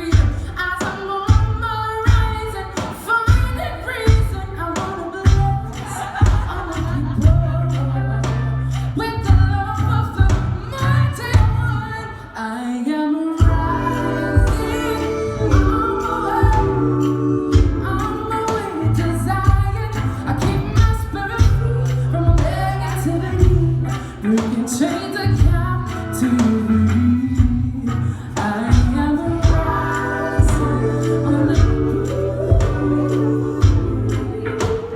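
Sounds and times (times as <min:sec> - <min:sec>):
steady drum beat: 0:00.0 - 0:11.9, 0:13.4 - 0:34.9
woman singing soul: 0:00.0 - 0:34.9
bass line: 0:05.3 - 0:12.0, 0:13.4 - 0:24.3, 0:25.3 - 0:34.9.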